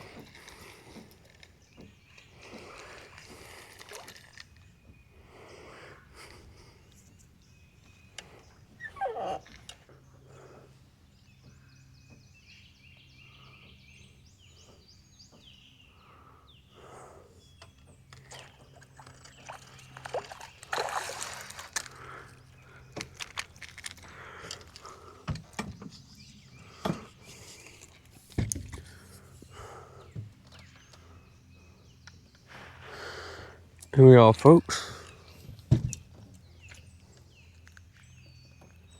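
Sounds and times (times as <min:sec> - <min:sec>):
short animal calls: 0:08.8 - 0:09.5.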